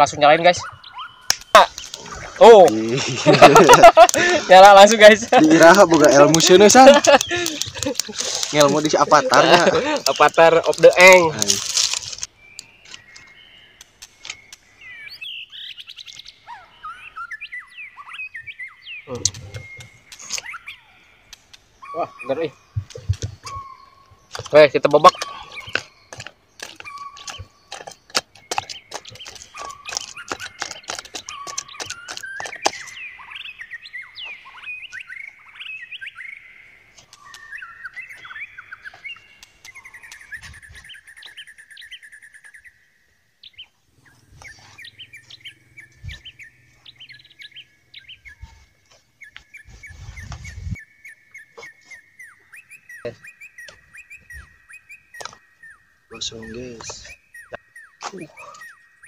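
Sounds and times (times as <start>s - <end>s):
small birds chirping: 0.0s - 59.0s
sharp clicks and taps: 5.6s - 8.7s, 24.3s - 32.9s.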